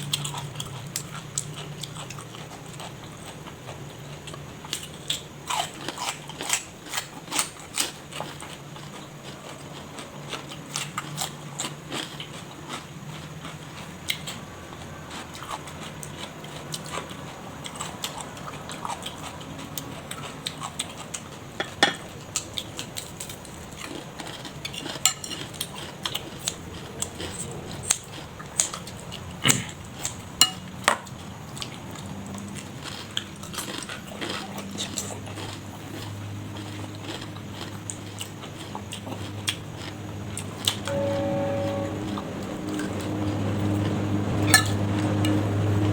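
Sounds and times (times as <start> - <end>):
person chewing food: 0.0 - 40.9
utensils clinking on dishes: 21.6 - 22.1, 24.3 - 25.8, 30.4 - 31.1, 40.8 - 45.9.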